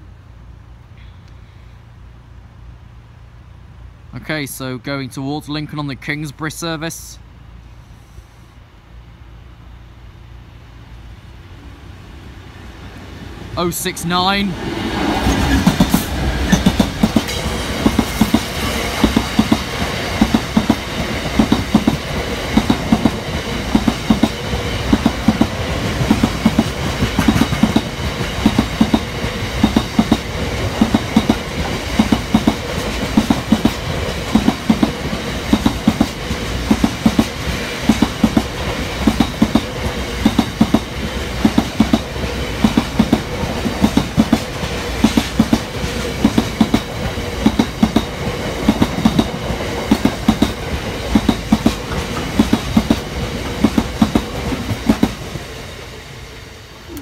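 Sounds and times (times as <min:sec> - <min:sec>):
train running rumble: 0:05.4 - 0:57.0
freight train wheels clattering: 0:15.0 - 0:55.5.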